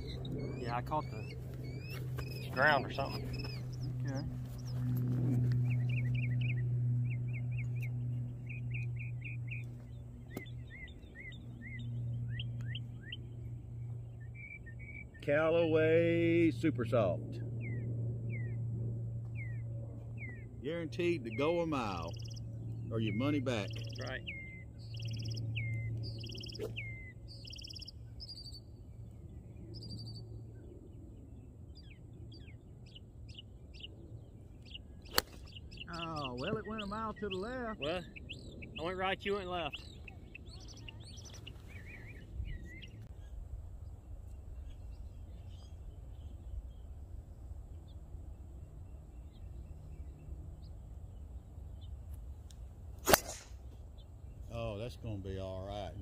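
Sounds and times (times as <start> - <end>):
small birds chirping: 0.0 - 18.6, 19.3 - 56.0
steady low hum: 0.0 - 56.0.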